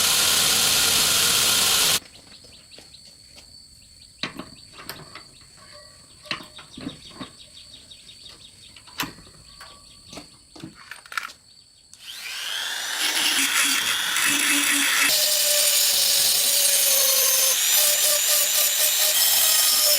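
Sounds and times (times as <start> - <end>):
electric power tool motor running: 0.0 - 2.0, 12.0 - 19.9.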